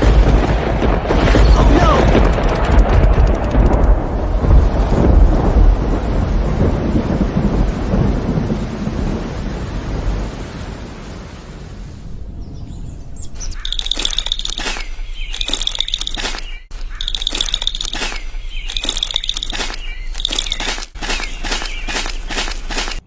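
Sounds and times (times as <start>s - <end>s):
deep loud rumble: 0.0s - 10.9s
high chirps: 12.5s - 22.3s.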